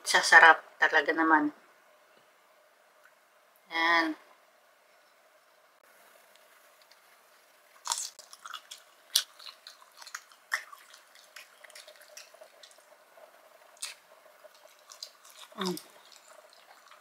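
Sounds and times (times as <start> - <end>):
wet chewing and smacking: 7.8 - 13.0, 13.7 - 17.0.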